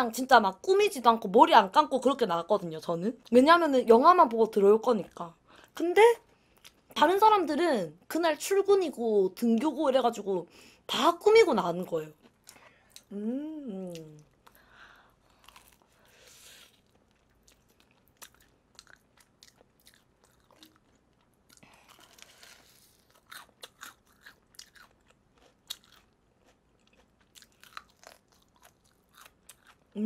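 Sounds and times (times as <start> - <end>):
fried chicken crunching: 16.9 - 29.9.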